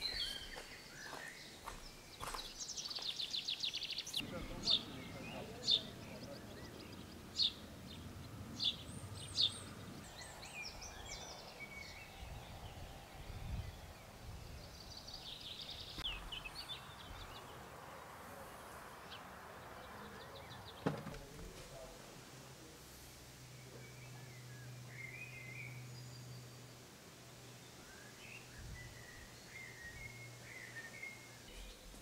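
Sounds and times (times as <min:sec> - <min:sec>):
birds chirping and singing: 0:00.0 - 0:17.9, 0:23.5 - 0:32.0
faint low background noise: 0:00.0 - 0:32.0
sharp thump: 0:20.8 - 0:21.6.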